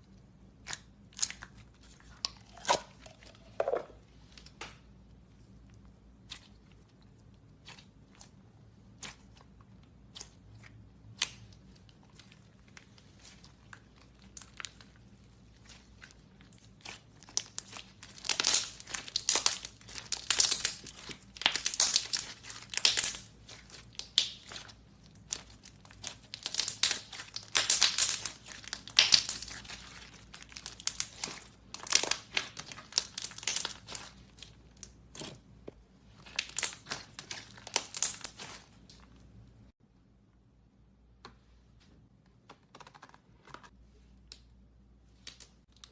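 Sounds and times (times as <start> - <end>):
slime clicking and popping: 16.8 - 34.1.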